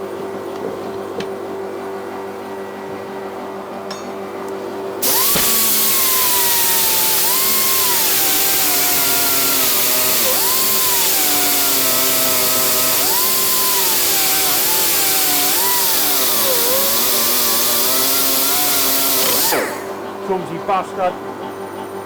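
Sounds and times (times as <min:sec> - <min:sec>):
lathe cutting hiss: 0:05.0 - 0:21.2
metal lathe humming: 0:05.0 - 0:22.0.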